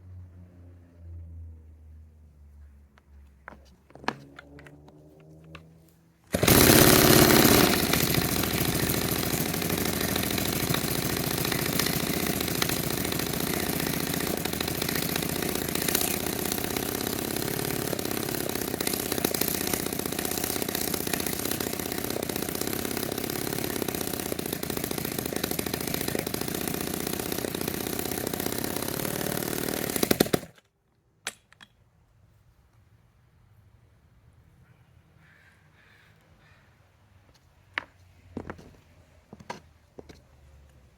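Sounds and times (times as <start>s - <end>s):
chainsaw engine running: 6.3s - 30.6s.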